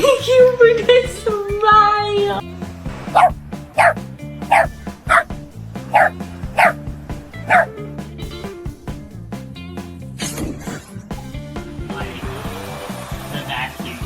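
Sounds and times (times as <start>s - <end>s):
background music: 0.0s - 14.0s
dog yipping: 3.1s - 5.3s, 5.9s - 6.8s, 7.4s - 7.8s.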